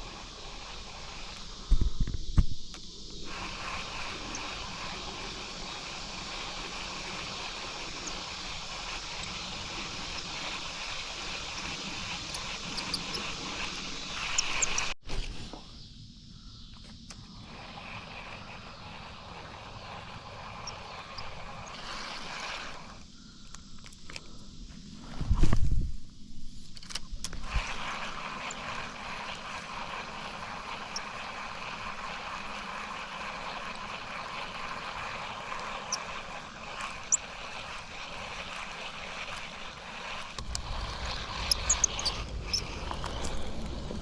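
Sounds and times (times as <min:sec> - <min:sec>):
insect chorus: 0:00.0 - 0:44.0.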